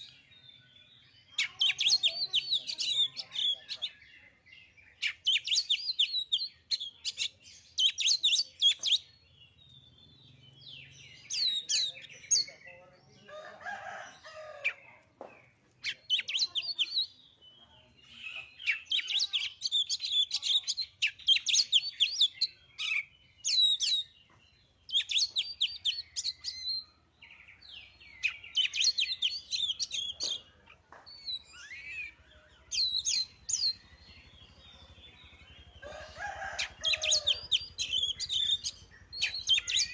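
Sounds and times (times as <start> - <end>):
bird fast high chirping song: 36.9 - 39.9.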